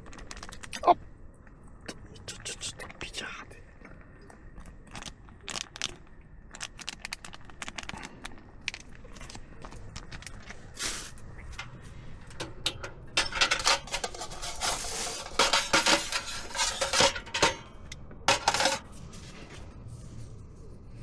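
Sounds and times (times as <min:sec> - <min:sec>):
metal utensils clinking and clattering: 0:10.7 - 0:18.9.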